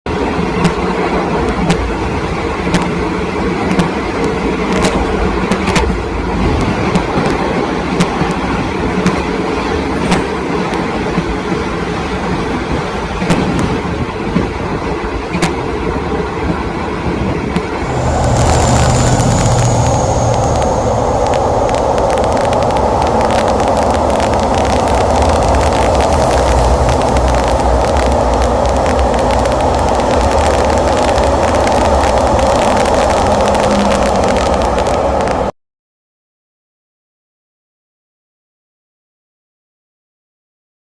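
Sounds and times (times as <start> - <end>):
train rumbling: 0.1 - 35.5
faint high squeal: 17.8 - 22.3.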